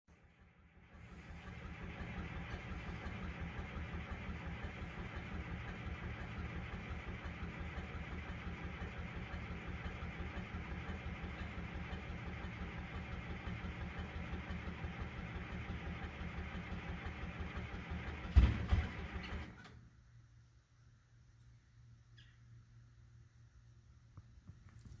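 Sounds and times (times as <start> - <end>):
diesel engine running: 0.1 - 19.8.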